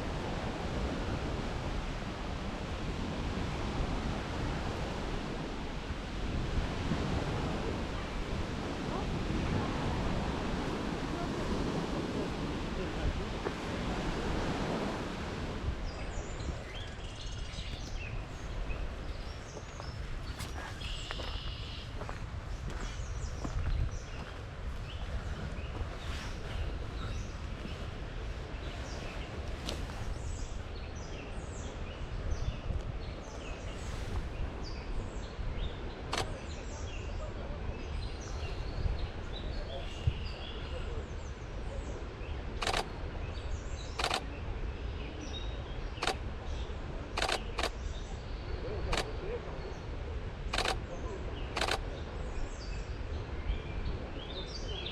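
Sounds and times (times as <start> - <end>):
wind noise on microphone: 0.0 - 54.9
songbirds singing: 13.3 - 54.9
sharp clicks: 50.5 - 50.8.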